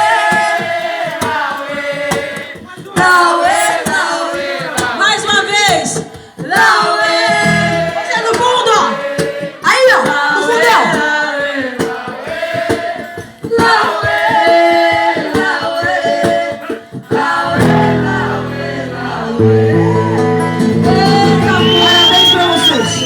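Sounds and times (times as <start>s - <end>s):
group singing: 0.0s - 23.0s
strummed accompaniment: 6.7s - 9.6s, 11.4s - 23.0s.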